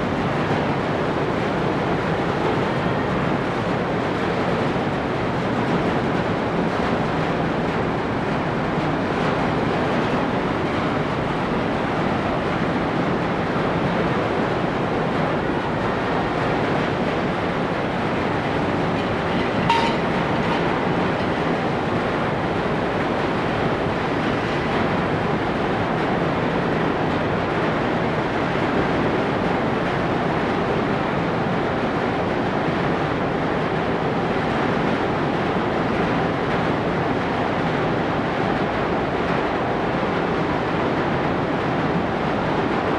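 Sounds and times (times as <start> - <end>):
ferry engine rumble: 0.2 - 27.0.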